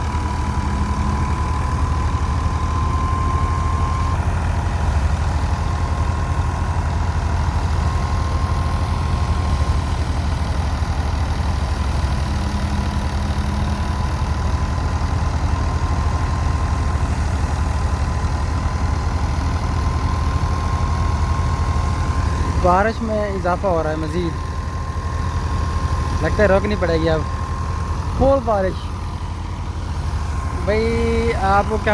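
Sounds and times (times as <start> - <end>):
tractor diesel engine running: 0.0 - 31.9
high-pitched whine: 25.5 - 31.9.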